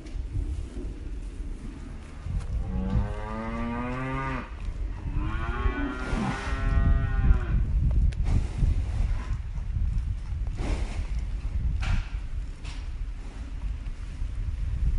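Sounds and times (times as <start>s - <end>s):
cow mooing: 2.7s - 4.5s, 5.2s - 7.6s.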